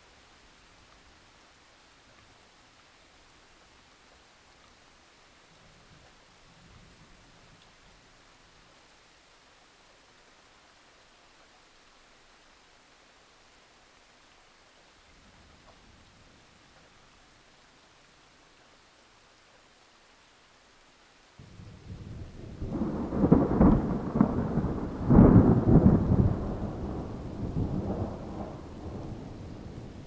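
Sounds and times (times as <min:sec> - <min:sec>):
light rain hiss: 0:00.0 - 0:30.0
thunder rumbling: 0:21.4 - 0:30.0.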